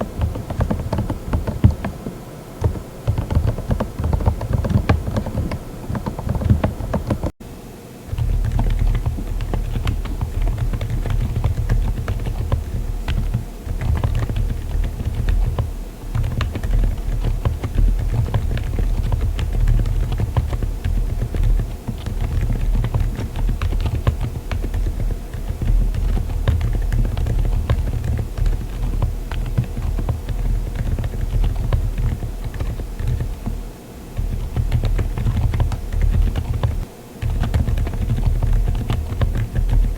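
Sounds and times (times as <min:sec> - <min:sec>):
typing on mechanical keyboard: 0:00.0 - 0:07.4, 0:08.1 - 0:33.6, 0:34.2 - 0:39.9.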